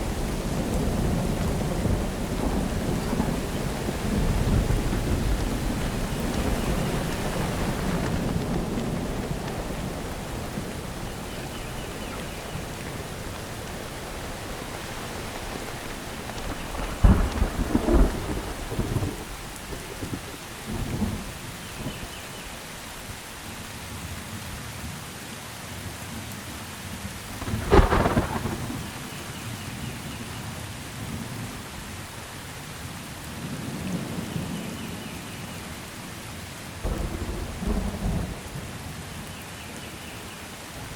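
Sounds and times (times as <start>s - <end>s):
sharp thunder cracks: 0.0s - 22.0s, 27.3s - 29.3s, 36.8s - 38.7s
thunder rumbling: 0.0s - 22.4s, 27.2s - 30.3s, 36.8s - 39.3s
steady rain: 0.0s - 40.9s
small crackles: 2.4s - 20.4s, 27.3s - 29.2s.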